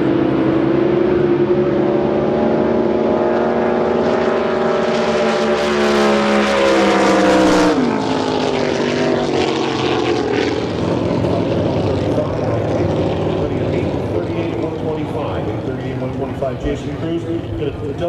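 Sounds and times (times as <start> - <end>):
drag boat engine drone: 0.0 - 18.0.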